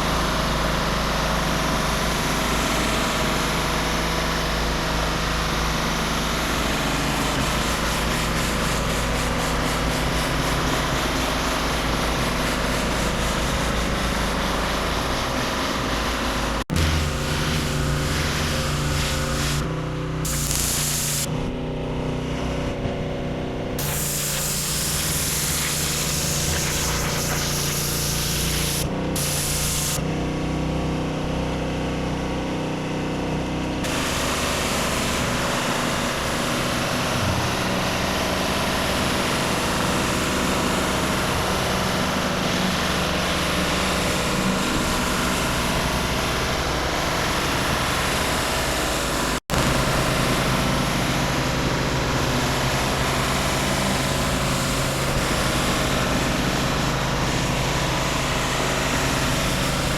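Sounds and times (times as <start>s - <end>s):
pressure washer engine running: 0.0s - 32.1s, 33.0s - 59.9s
water jet hissing onto concrete: 1.1s - 19.6s, 20.3s - 21.3s, 23.8s - 30.0s, 33.9s - 59.9s.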